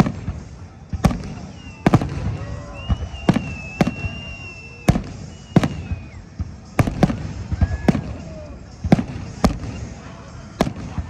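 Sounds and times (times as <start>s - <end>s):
firework bangs: 0.0s - 11.0s
high whistling tone: 1.2s - 8.8s.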